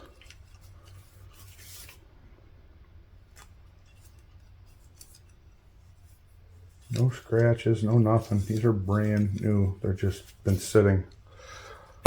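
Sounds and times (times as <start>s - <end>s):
low steady hum: 0.0s - 12.0s
light rubbing: 3.2s - 11.2s.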